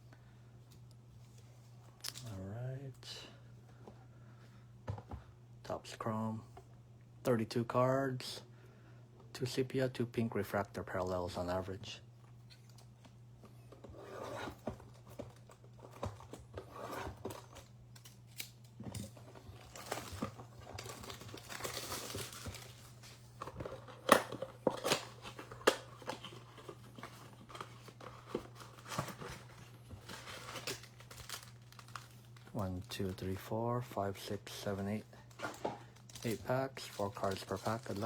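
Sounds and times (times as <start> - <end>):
steady low hum: 0.0 - 38.0
plastic wrap and cardboard crinkling: 14.8 - 33.5, 34.5 - 38.0.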